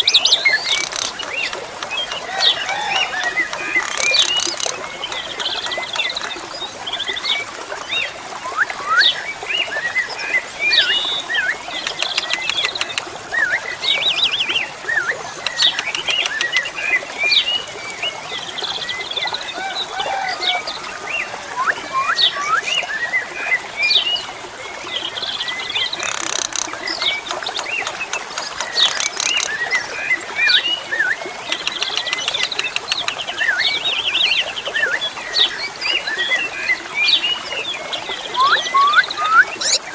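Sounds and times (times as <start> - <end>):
starling singing: 38.4 - 39.8.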